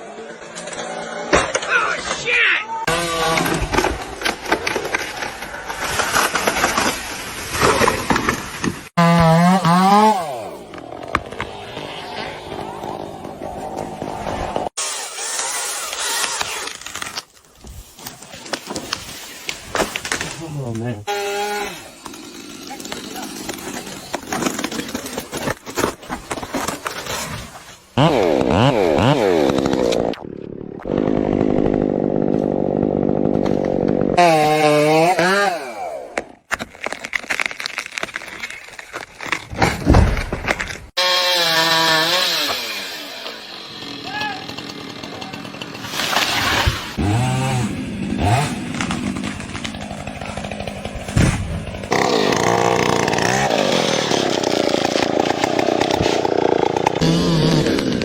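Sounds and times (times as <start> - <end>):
chainsaw engine revving: 8.9 - 16.9, 21.1 - 25.2, 28.0 - 36.4, 41.0 - 58.0
high-pitched chainsaw running: 41.0 - 48.6, 51.9 - 58.0.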